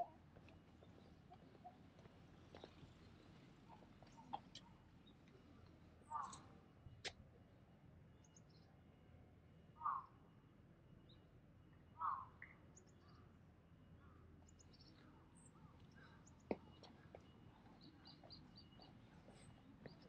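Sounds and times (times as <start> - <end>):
small birds chirping: 0.0 - 7.2, 14.4 - 20.0
faint outdoor background noise: 0.0 - 20.0.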